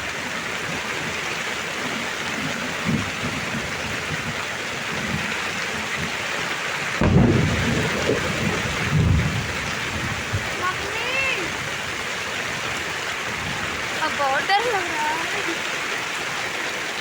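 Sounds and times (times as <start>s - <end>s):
heavy rain: 0.0s - 17.0s
thunder clap and rumble: 0.4s - 15.5s.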